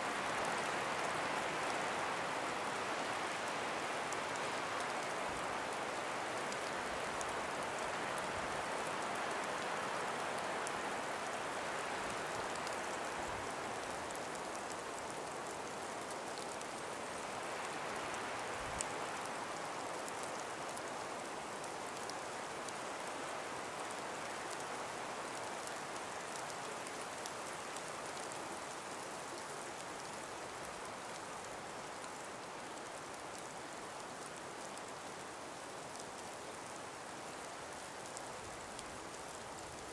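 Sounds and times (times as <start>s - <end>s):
breeze through forest: 0.0s - 39.9s
faint ticks: 33.0s - 39.9s.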